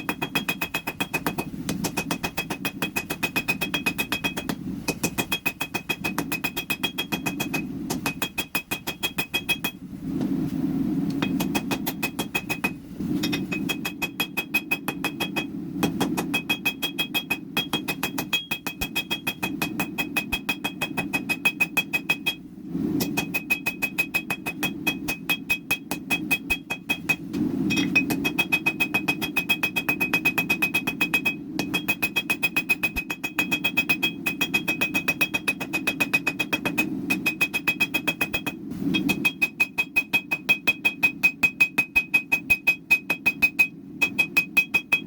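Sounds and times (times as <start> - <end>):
hammer striking steel on anvil: 0.0 - 9.8, 11.2 - 22.4, 23.0 - 45.0
low rumble: 1.3 - 21.6, 22.2 - 25.2, 25.9 - 39.6.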